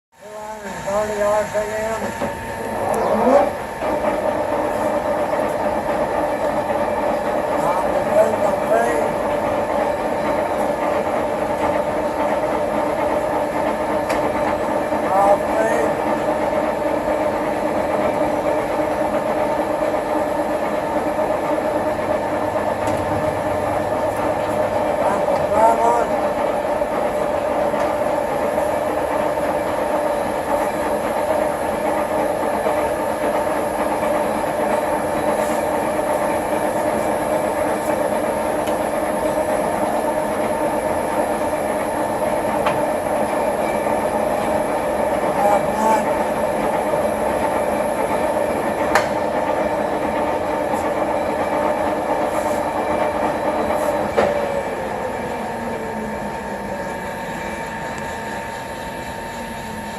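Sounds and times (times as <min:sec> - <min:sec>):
lathe gear drive whining: 0:00.2 - 0:59.9.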